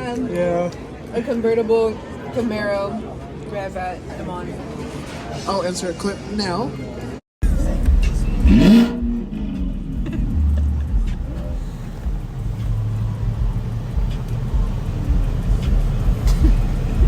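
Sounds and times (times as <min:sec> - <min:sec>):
car exhaust rumbling: 0:07.4 - 0:17.0.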